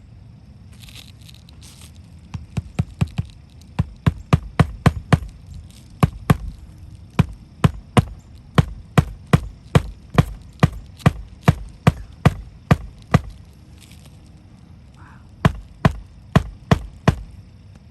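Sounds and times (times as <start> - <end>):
hammer driving roofing nails: 2.4 - 13.5, 15.4 - 17.4.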